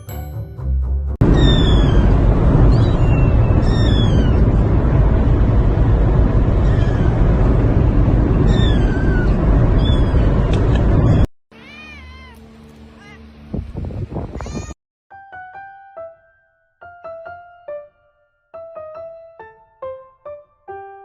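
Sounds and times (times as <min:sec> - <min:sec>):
loud steady rumble: 0:01.2 - 0:11.3
cat meowing: 0:01.4 - 0:02.1, 0:02.7 - 0:04.4, 0:06.6 - 0:07.1, 0:08.5 - 0:10.3, 0:11.5 - 0:12.4.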